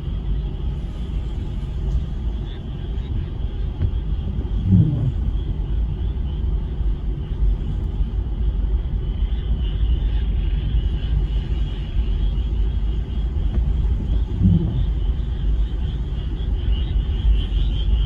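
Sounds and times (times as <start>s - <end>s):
low rumble: 0.0s - 18.0s
brief low hum: 3.8s - 5.4s, 13.5s - 15.3s.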